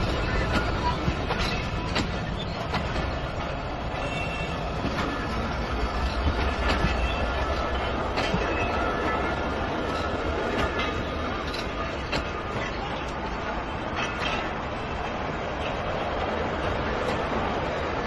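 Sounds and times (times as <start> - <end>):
train rumble: 0.0 - 18.0
wheels clacking over rail joints: 0.0 - 18.0
faint wheel squeal: 3.8 - 13.1.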